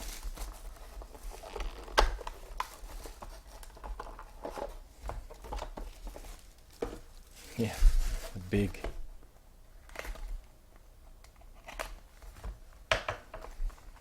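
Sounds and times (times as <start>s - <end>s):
cards and plastic holders rustling: 0.0s - 9.0s.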